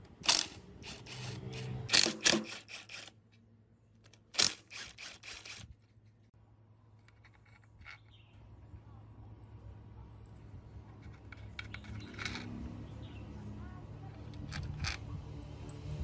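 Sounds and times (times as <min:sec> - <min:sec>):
sharp clicks and knocks: 0:00.0 - 0:03.4, 0:11.0 - 0:12.6.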